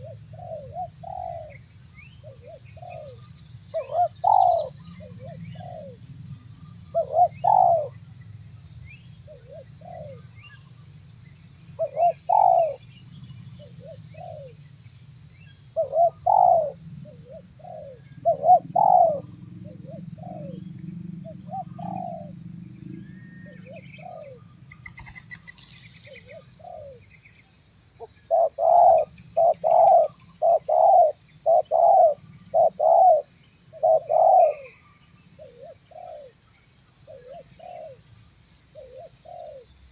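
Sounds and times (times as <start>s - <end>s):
doves cooing: 0.0s - 8.0s, 9.2s - 10.7s, 11.8s - 14.6s, 15.7s - 27.1s, 28.0s - 36.4s, 37.0s - 38.1s, 38.7s - 39.8s
small birds chirping: 0.0s - 39.9s
low rumble: 16.7s - 24.9s.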